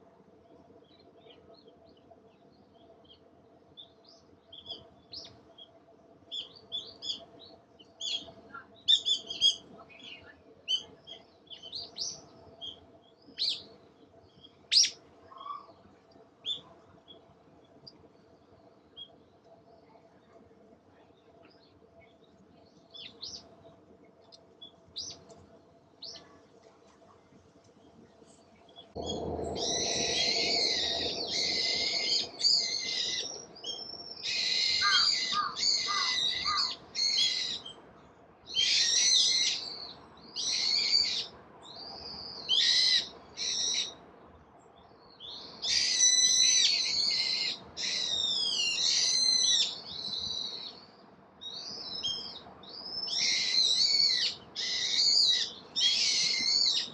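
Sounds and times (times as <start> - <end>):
low steady background hiss: 0.0 - 56.9
songbird singing: 0.4 - 20.1, 20.9 - 26.4, 27.7 - 37.8, 44.7 - 56.9
faint high chirps: 28.3 - 37.2.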